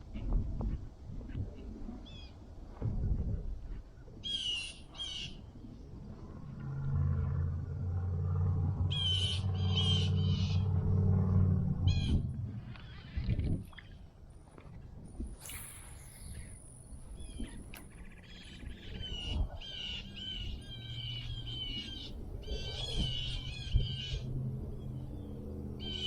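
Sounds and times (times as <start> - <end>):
wind rumble on microphone: 0.0 - 26.0
low motor hum: 5.5 - 26.0
harsh bird squawks: 8.9 - 10.6.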